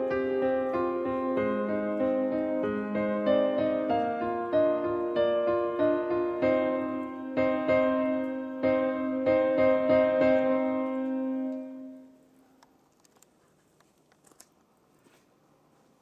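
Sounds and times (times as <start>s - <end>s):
gentle piano melody: 0.0s - 12.4s.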